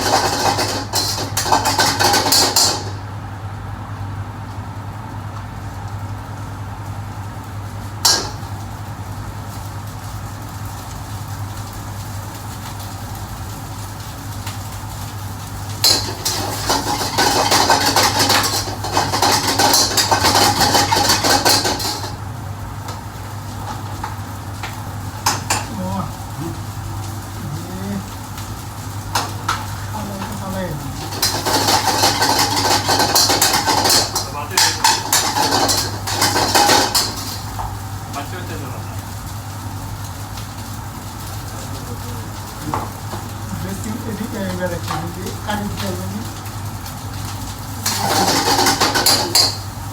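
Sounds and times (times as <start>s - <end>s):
metal pans clattering and scraping: 0.0s - 3.0s, 15.8s - 22.2s, 31.0s - 37.7s, 47.8s - 49.7s.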